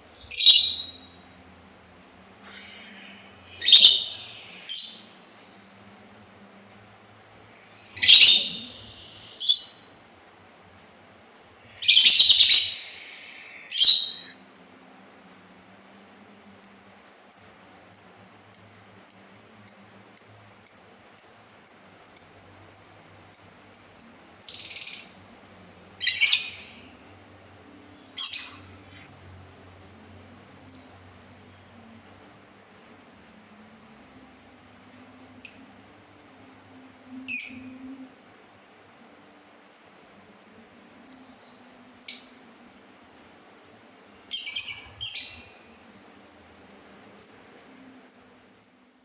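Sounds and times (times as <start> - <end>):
songbird chirps: 0.1 - 1.3, 2.4 - 5.6, 7.5 - 10.1, 11.6 - 14.4, 16.6 - 27.0, 27.8 - 31.2, 39.7 - 42.8, 44.3 - 46.0
songbird calling: 0.2 - 1.2, 2.4 - 5.5, 7.6 - 10.0, 11.6 - 14.4, 16.6 - 25.2, 26.0 - 27.0, 28.0 - 29.2, 29.9 - 31.2, 37.2 - 38.0, 39.8 - 42.7, 44.3 - 45.9.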